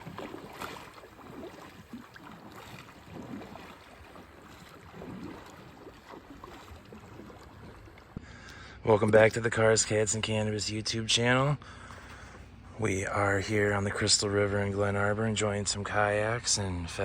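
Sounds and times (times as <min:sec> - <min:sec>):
paddle splashes and drips: 0:00.0 - 0:08.6.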